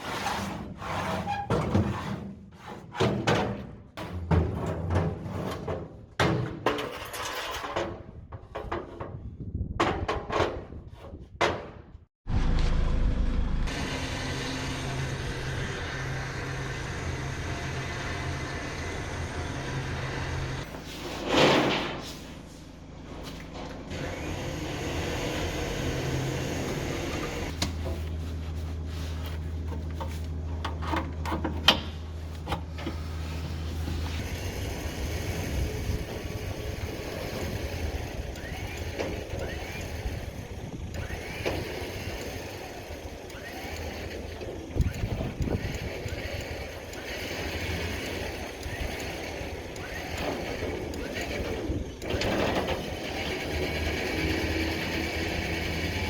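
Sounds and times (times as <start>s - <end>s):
vehicle engine drone: 12.3s - 20.7s
road noise: 12.3s - 20.8s, 22.3s - 56.0s.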